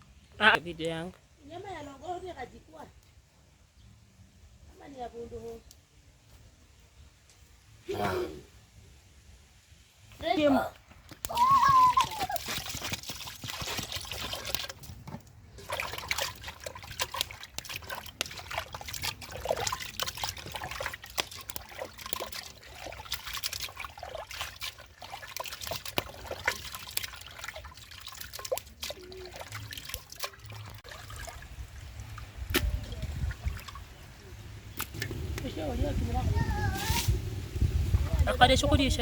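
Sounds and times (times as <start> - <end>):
water trickling: 11.2 - 35.9.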